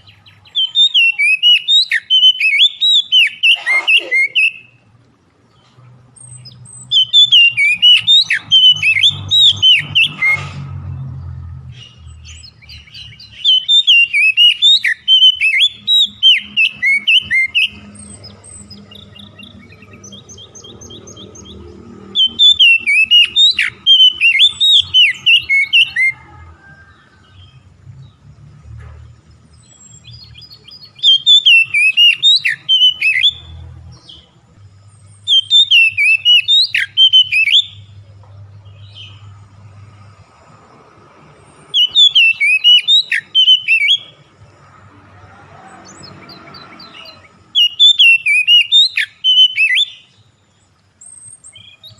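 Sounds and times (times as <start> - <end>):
songbird whistled song: 0.0 - 10.7, 11.7 - 27.6, 29.4 - 44.8, 45.4 - 51.9
soft bird chirps: 11.7 - 26.2, 28.9 - 44.5, 45.7 - 51.9.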